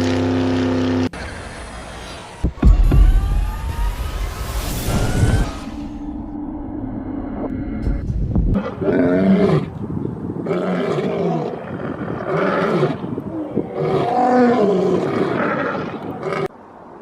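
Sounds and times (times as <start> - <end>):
animal roars: 10.4 - 16.5.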